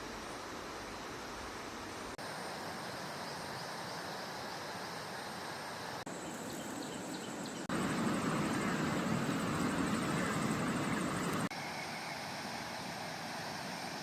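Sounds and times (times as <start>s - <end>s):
steady rushing hiss: 0.0s - 11.5s
insect calls: 0.0s - 14.0s
bird calls: 6.1s - 12.3s.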